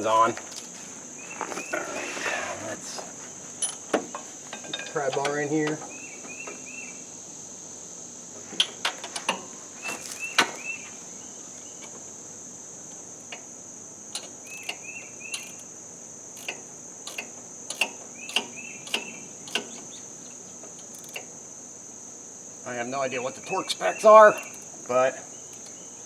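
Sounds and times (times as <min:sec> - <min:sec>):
crickets chirping: 0:00.0 - 0:26.0
pry bar clinking on metal: 0:14.2 - 0:15.7, 0:16.4 - 0:20.0, 0:23.6 - 0:24.8, 0:25.4 - 0:25.9.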